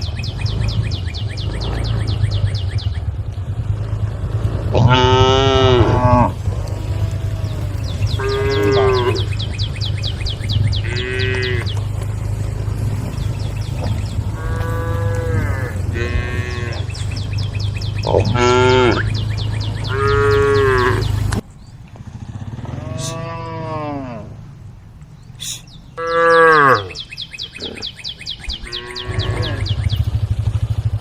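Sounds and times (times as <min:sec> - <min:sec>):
cattle mooing: 0:00.6 - 0:02.4, 0:04.6 - 0:21.3, 0:22.6 - 0:24.5, 0:26.0 - 0:27.0, 0:28.6 - 0:30.0.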